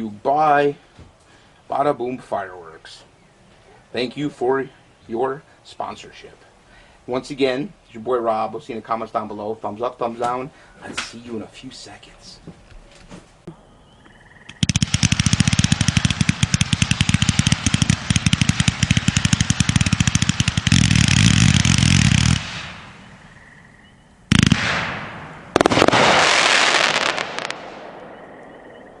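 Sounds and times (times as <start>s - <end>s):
firework bang: 14.6s - 23.0s, 24.3s - 28.2s
firework cake launch shots: 14.6s - 23.0s, 24.3s - 28.0s
hissing crackling firework burst: 14.6s - 23.2s, 24.3s - 27.9s.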